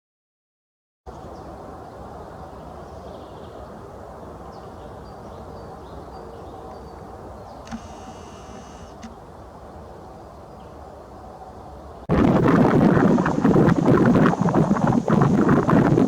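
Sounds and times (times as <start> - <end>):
harsh buzzing: 7.7 - 9.2, 12.1 - 16.0
steady rushing background: 12.1 - 16.0.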